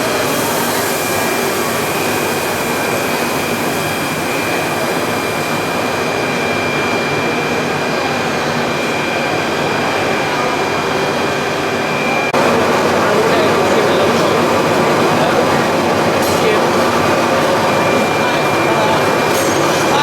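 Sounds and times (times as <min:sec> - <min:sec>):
machinery running with high whine: 0:00.0 - 0:20.0.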